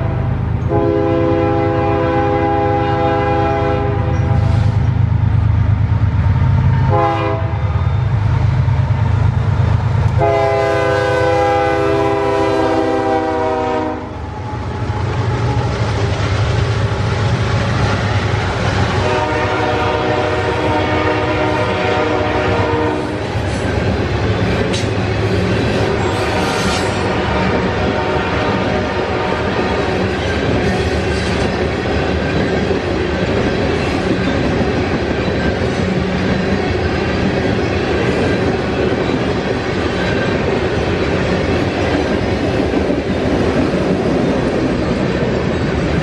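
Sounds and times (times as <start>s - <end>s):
locomotive horn blasts: 0.0s - 4.6s, 6.9s - 7.7s, 10.2s - 14.2s, 18.9s - 23.2s, 26.1s - 29.6s
train cars rolling: 0.0s - 46.0s.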